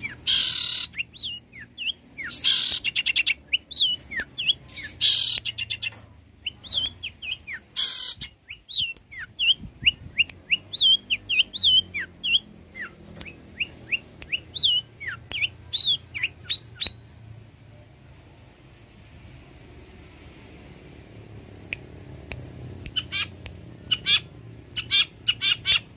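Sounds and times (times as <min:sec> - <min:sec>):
shrike singing chirps and whistles: 0:00.0 - 0:17.1, 0:22.9 - 0:25.9.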